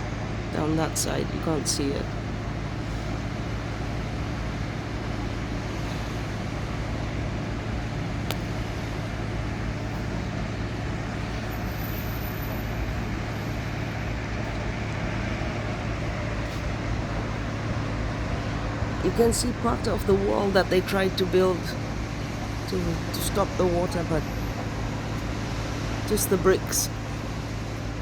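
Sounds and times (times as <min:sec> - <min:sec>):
water pump engine droning: 0:00.0 - 0:28.0.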